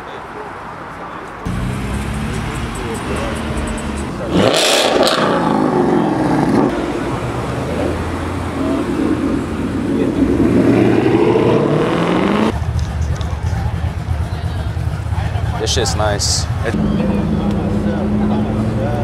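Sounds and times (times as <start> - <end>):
car engine revving: 1.4 - 13.2, 16.5 - 19.0.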